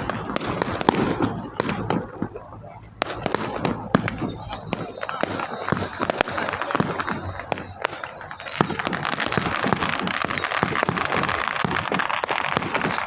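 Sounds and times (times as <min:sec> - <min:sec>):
firecrackers popping: 0:00.0 - 0:13.0.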